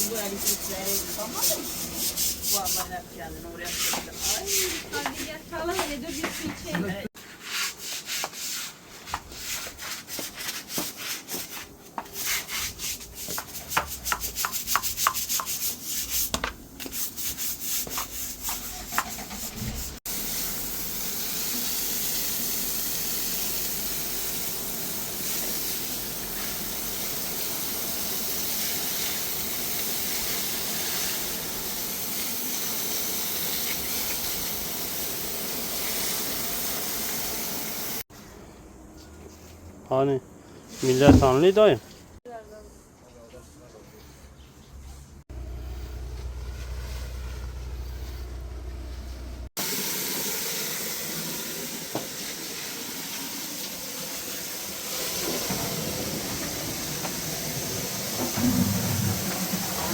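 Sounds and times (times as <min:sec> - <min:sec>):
brush scrubbing hard surface: 0:00.0 - 0:20.0, 0:54.9 - 0:59.9.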